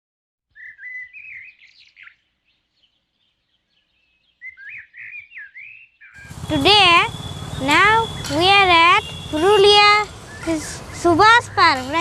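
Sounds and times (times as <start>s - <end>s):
bird chirps and whistles: 0.5s - 2.1s, 4.4s - 11.0s.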